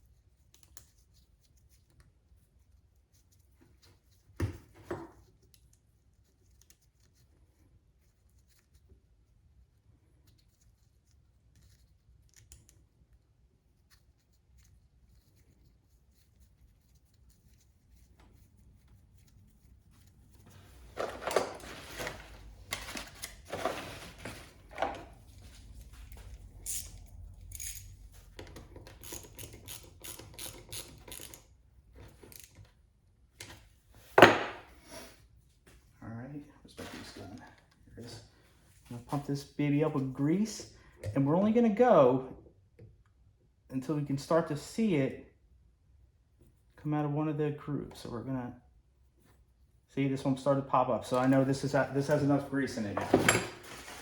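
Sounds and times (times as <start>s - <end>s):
hand tools scraping: 20.7s - 28.0s.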